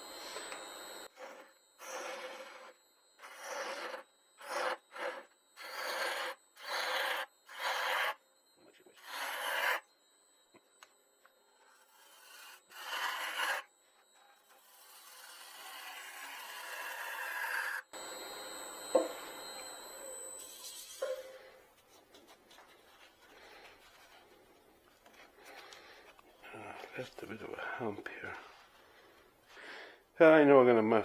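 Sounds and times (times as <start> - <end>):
lathe tool rasping on wood: 0.0 - 8.2, 9.0 - 9.8, 11.8 - 13.7, 14.4 - 21.0.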